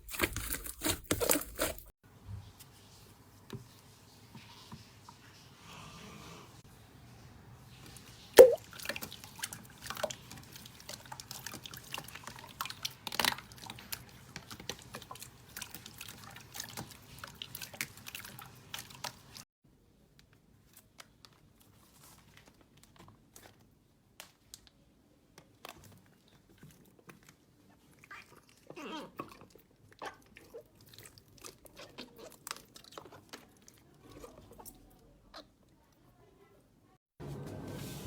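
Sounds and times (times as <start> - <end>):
slime squelching clicks and pops: 8.4 - 8.6.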